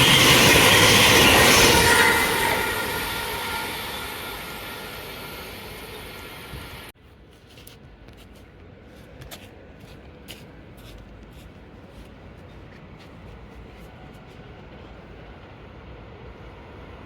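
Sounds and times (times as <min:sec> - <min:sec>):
train passing: 0:00.0 - 0:06.9, 0:12.2 - 0:17.0.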